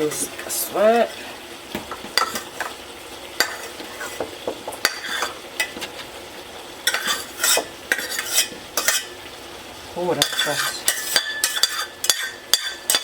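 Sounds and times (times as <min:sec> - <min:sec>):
rice sizzling: 0:00.0 - 0:13.0
utensil scraping a pot: 0:02.2 - 0:02.8, 0:03.4 - 0:06.2, 0:06.8 - 0:09.2, 0:10.1 - 0:13.0.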